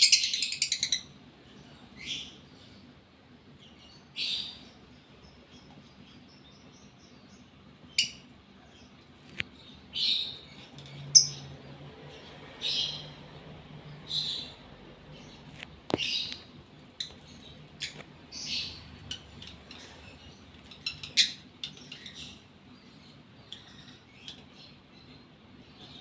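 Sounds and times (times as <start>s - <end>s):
lovebird chirping: 0.0s - 1.2s, 9.6s - 11.5s, 13.9s - 26.0s.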